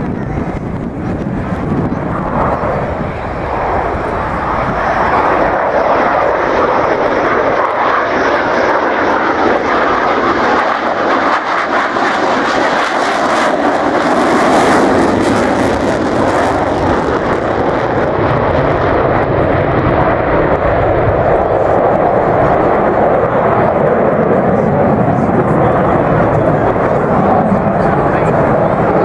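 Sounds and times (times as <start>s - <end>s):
aircraft flying overhead: 0.0s - 29.0s.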